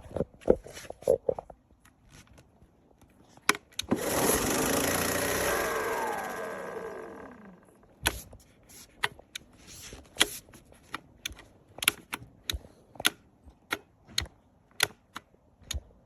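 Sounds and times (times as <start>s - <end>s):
lawnmower switch clicks: 3.4s - 8.2s, 10.2s - 15.8s.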